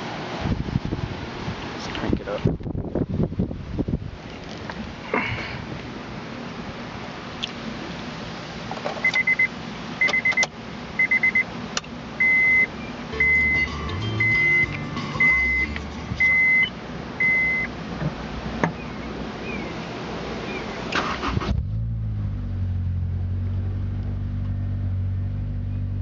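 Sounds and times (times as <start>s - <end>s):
car warning beeps: 9.0s - 11.5s, 12.2s - 17.7s.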